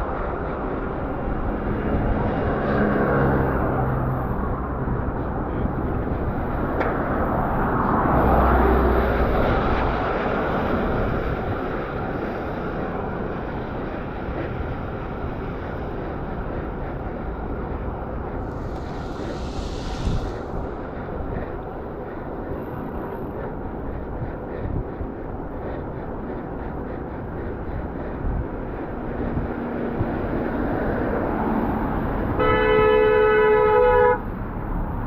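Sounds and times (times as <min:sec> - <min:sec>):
wind rushing: 0:00.0 - 0:32.4
bicycle road noise: 0:00.0 - 0:35.0
short hiss: 0:18.5 - 0:21.2.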